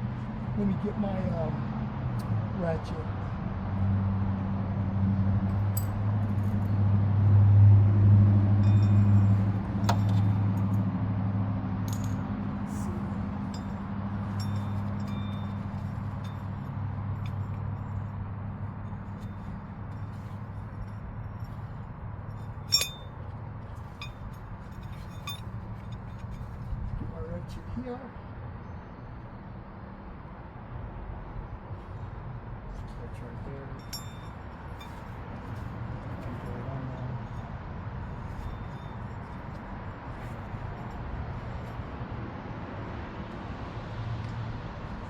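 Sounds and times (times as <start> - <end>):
low mechanical hum: 0.0 - 45.0
hand tool clinking on metal: 5.5 - 6.8, 8.6 - 10.8, 11.9 - 18.1, 18.8 - 26.6, 33.8 - 40.9
light metal clinks: 5.5 - 6.8, 8.6 - 10.8, 11.8 - 26.7, 33.5 - 41.9.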